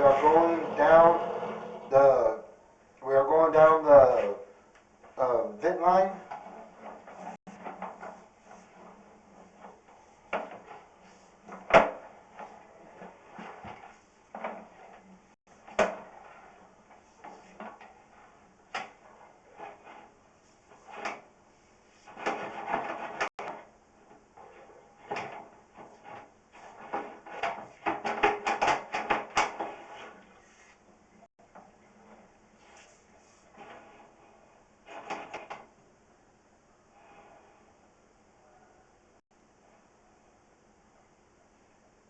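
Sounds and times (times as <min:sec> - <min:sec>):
cable knocking and scraping in pipe: 0:03.9 - 0:20.1, 0:20.7 - 0:21.3, 0:22.0 - 0:30.4, 0:31.5 - 0:35.7.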